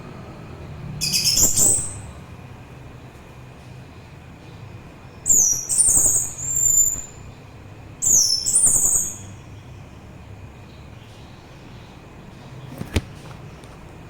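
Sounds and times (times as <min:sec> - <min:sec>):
thrush singing whistled phrases: 0:01.0 - 0:02.2, 0:05.3 - 0:07.2.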